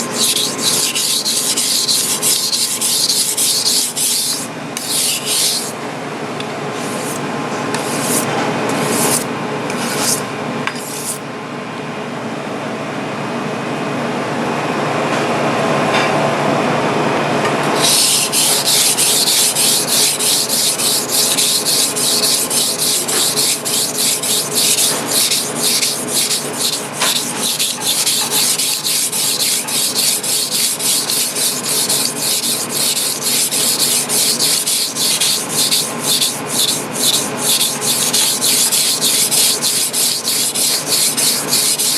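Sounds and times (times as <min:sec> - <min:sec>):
knife scraping on whetstone: 0:00.0 - 0:05.8, 0:06.8 - 0:07.2, 0:07.8 - 0:11.2, 0:17.7 - 0:41.9.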